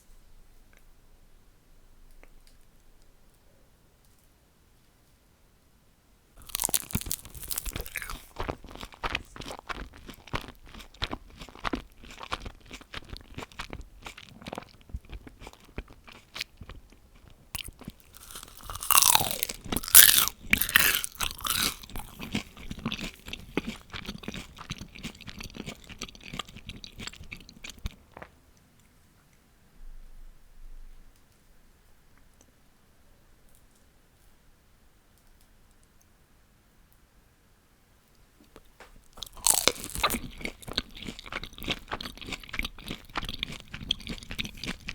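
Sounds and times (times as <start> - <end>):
chewing crispy fried food: 6.4 - 28.4, 39.0 - 44.9.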